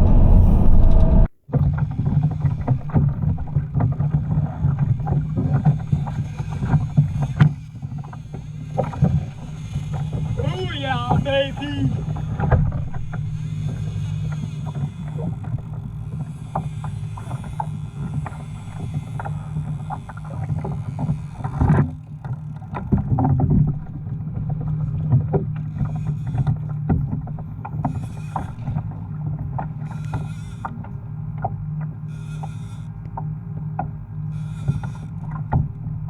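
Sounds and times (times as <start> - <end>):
steady low rumble: 0.0 - 1.3
water sloshing against hull: 0.0 - 36.0
small knocks and clicks: 12.0 - 36.0.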